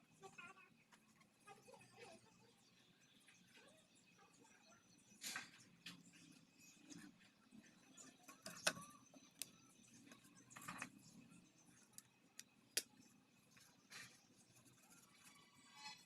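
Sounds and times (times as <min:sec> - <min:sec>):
faint clicks and taps: 0:05.2 - 0:15.0.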